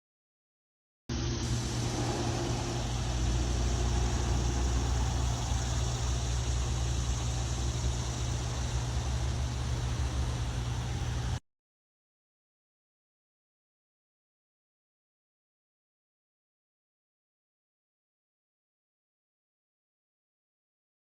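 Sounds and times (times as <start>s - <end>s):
even hiss: 1.1s - 11.4s
vehicle low rumble: 1.1s - 11.4s.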